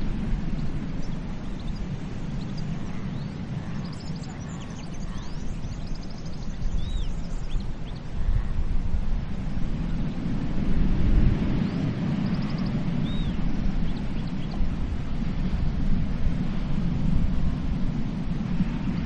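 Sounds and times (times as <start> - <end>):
birds chirping and whistling: 0.5 - 8.0, 11.6 - 14.6
surf washing onto beach: 7.7 - 19.0.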